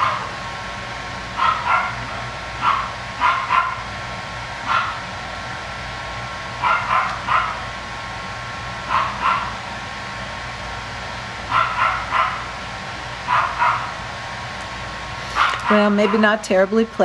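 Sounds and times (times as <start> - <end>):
steady background hum: 0.0 - 17.0
puppies yipping: 6.6 - 7.6, 15.2 - 16.4.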